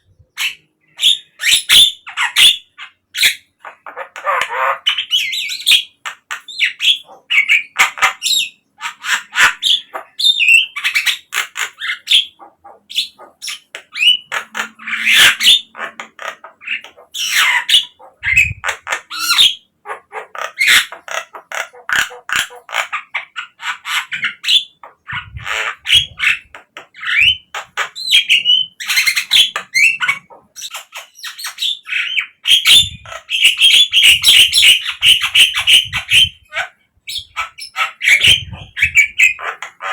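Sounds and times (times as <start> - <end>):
myna calling: 11.4 - 30.7, 32.4 - 39.9.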